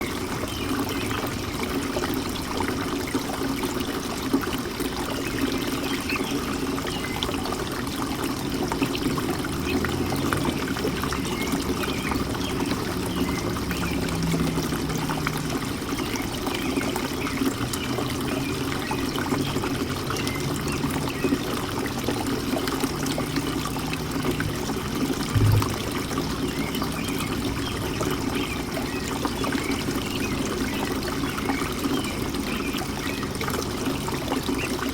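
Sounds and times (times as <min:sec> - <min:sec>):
fountain water trickling and splashing: 0:00.0 - 0:34.9
short low thump: 0:25.3 - 0:26.1.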